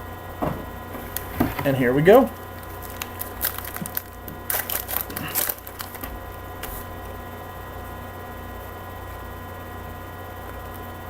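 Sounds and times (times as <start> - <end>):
low electrical hum: 0.0 - 11.0
foil pack tearing and crinkling: 2.5 - 7.0.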